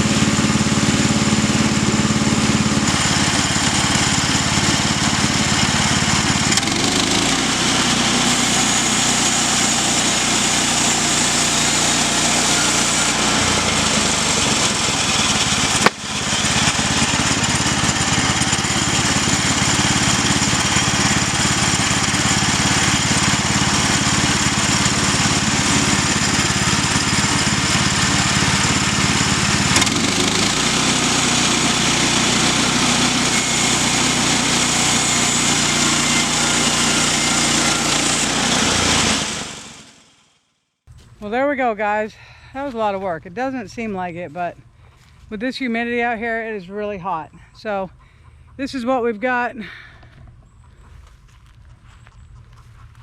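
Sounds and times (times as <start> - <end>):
small gasoline engine running: 0.0 - 40.3.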